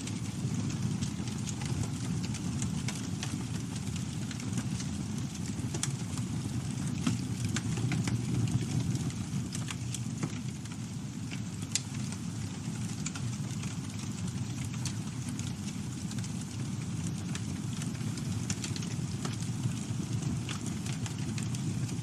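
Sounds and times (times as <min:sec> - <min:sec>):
burning wood crackling and popping: 0:00.0 - 0:22.0
campfire flames rumbling: 0:00.0 - 0:22.0.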